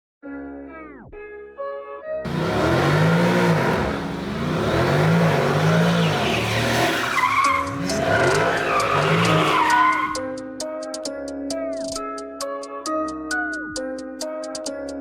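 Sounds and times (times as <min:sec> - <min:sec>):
music: 0:00.2 - 0:02.3, 0:07.5 - 0:15.0
car engine revving: 0:02.3 - 0:10.2
tyre squeal: 0:02.3 - 0:10.2.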